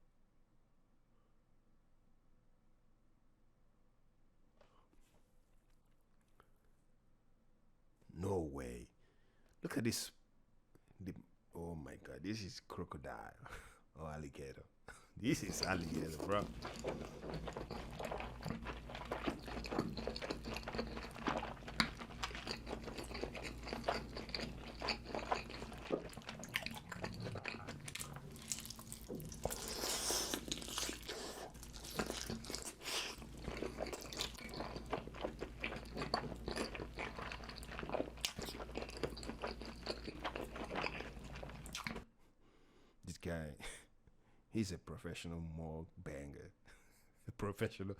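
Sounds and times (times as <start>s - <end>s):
person chewing food: 15.3s - 42.0s.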